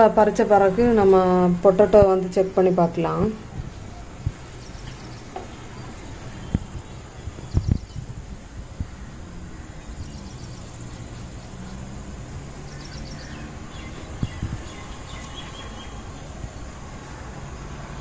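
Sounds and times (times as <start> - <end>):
small birds chirping: 2.0 - 17.8.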